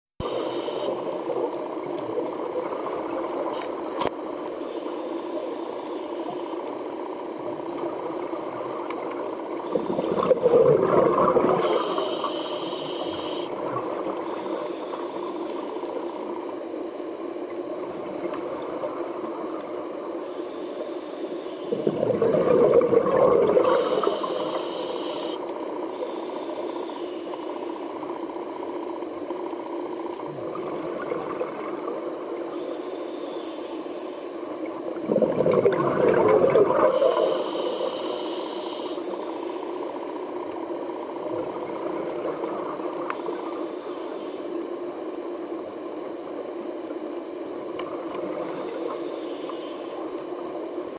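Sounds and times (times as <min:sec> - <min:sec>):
exhaled bubbles rushing: 0:10.0 - 0:11.8, 0:21.7 - 0:24.2, 0:30.3 - 0:32.0, 0:34.9 - 0:37.2
hiss of drawn air: 0:11.6 - 0:13.5, 0:23.6 - 0:27.8, 0:36.9 - 0:39.6.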